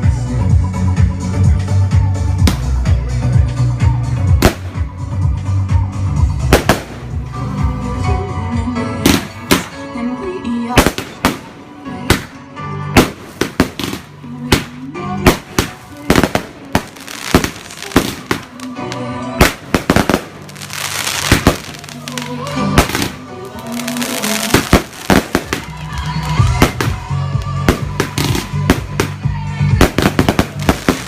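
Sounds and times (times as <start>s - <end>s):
fireworks bangs: 4.4s - 4.9s, 6.5s - 7.2s, 9.0s - 9.8s, 10.7s - 12.4s, 13.0s - 29.2s, 29.8s - 31.0s
fireworks crackling: 4.4s - 4.9s, 6.4s - 7.6s, 9.0s - 9.9s, 10.7s - 31.0s.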